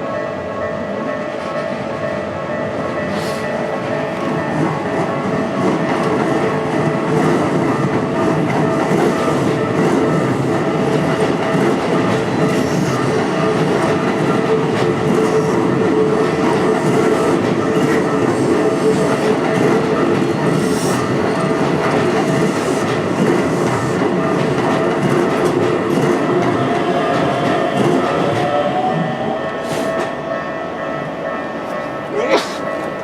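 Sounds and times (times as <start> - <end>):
electric train wheels rumbling on rails: 0.0 - 33.0.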